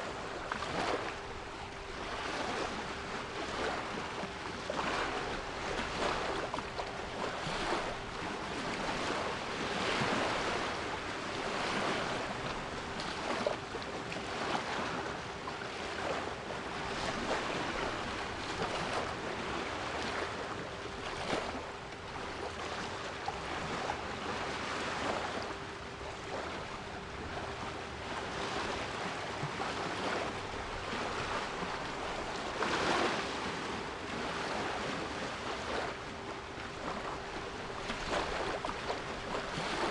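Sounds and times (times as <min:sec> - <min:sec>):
sea waves washing in: 0:00.0 - 0:39.9.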